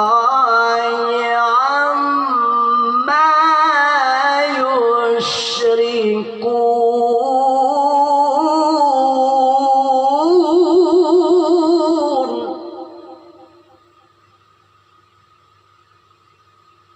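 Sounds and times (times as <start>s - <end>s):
man chanting melodically: 0.0s - 7.9s.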